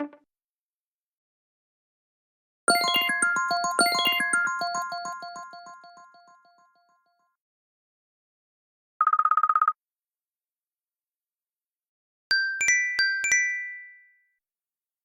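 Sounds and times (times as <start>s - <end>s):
bell-like chime notes: 2.7s - 6.8s.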